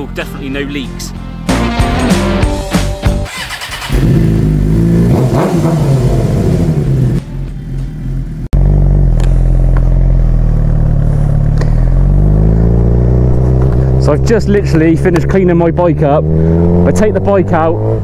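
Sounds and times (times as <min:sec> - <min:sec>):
motorcycle engine revving: 0:03.1 - 0:18.0
motorcycle engine running steadily: 0:03.8 - 0:18.0.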